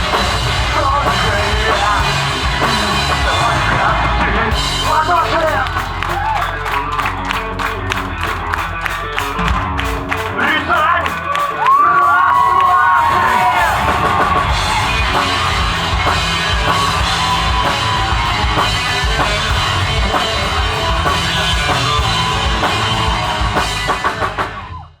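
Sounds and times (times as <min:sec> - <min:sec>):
drum kit beat: 0:00.0 - 0:24.8
live rock band playing: 0:00.0 - 0:25.0.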